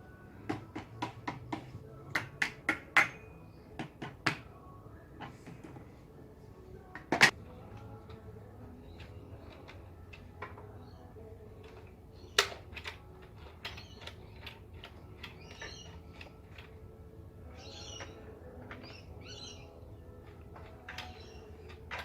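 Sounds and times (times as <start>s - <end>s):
small hard objects clicking: 11.6s - 16.8s
faint high chirping: 13.4s - 16.7s, 17.4s - 22.0s.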